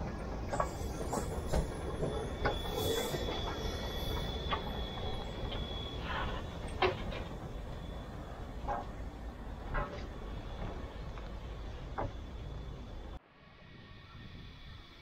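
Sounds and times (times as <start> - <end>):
train wheels rumbling on rail: 0.0 - 13.2
high-pitched wheel squeal: 0.5 - 9.0.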